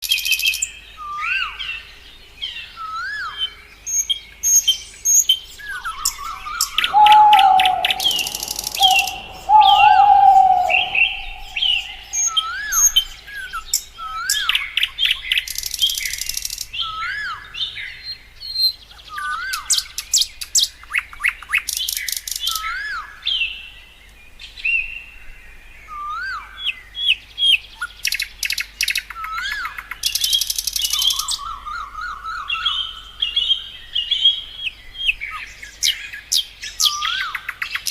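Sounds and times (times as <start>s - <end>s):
birds chirping: 4.4s - 14.1s
rapid bird trills: 6.0s - 13.2s
low drawn-out whistle: 6.8s - 12.8s.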